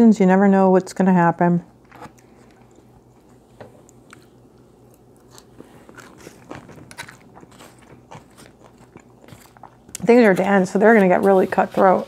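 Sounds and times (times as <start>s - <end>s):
salad greens being crunched: 4.9s - 10.6s.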